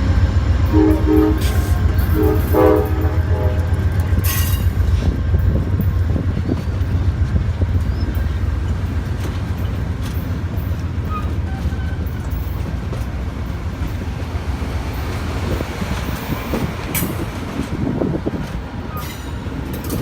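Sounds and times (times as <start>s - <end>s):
train wheels rumbling on rail: 0.0s - 20.0s
clicks of wheels on track: 14.9s - 20.0s.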